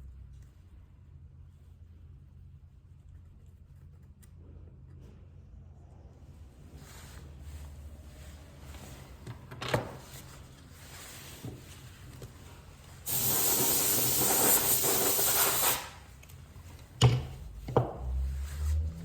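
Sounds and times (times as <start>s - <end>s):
hissing spray burst: 13.1s - 16.0s.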